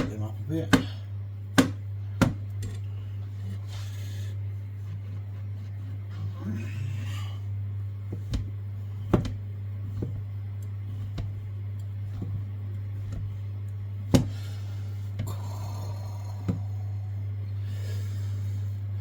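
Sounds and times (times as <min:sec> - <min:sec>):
knife chopping on board: 0:00.0 - 0:02.4, 0:08.1 - 0:10.3, 0:14.1 - 0:14.4
steady low hum: 0:00.0 - 0:19.0.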